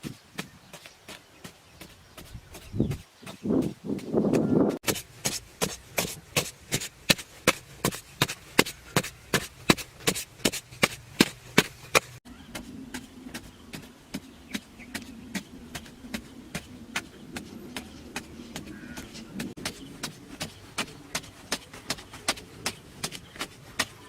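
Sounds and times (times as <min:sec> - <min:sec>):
hand tool chopping: 0:02.5 - 0:15.9.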